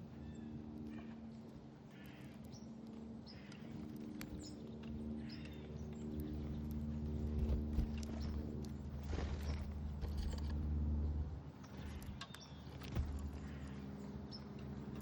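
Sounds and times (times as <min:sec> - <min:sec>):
low mechanical hum: 0:00.0 - 0:15.0
songbirds chirping: 0:00.0 - 0:15.0.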